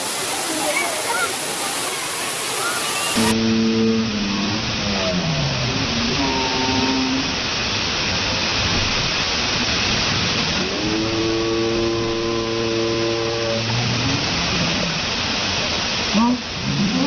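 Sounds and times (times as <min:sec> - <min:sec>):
waterfall rushing: 0:00.0 - 0:17.0
held layered pitched tone: 0:03.0 - 0:07.2.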